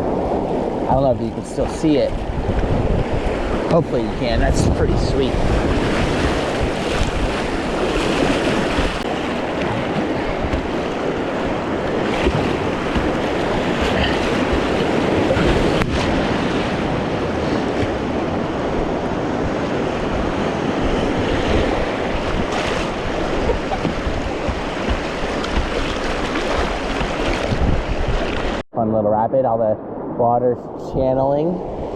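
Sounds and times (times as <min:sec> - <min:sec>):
creek water rushing: 0:05.1 - 0:28.6.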